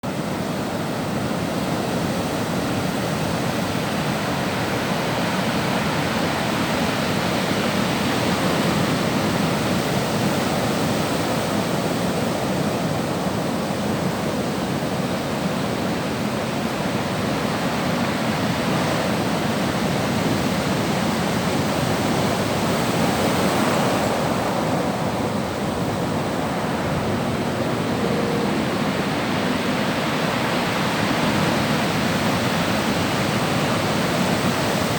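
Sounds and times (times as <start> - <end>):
waves rushing: 15.8 - 34.9.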